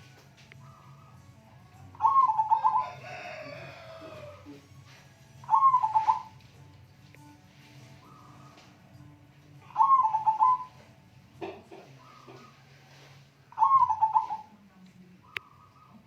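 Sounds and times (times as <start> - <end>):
dove cooing: 0.0 - 6.4, 7.7 - 9.0, 9.6 - 14.6.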